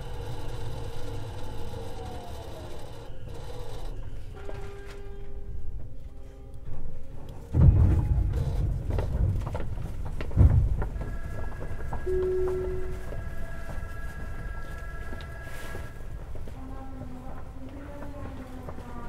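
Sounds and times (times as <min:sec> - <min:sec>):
steady whine from running gear: 0:00.0 - 0:06.4, 0:08.3 - 0:16.6
train wheels rumbling on rails: 0:00.0 - 0:19.0
heavy knocks: 0:07.5 - 0:13.3.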